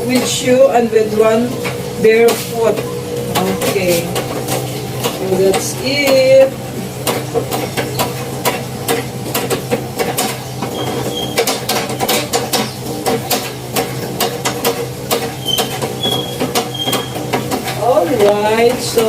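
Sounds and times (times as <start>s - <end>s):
sewing machine clattering: 8.9s - 19.0s
high squeaks: 10.7s - 12.8s, 15.3s - 17.3s.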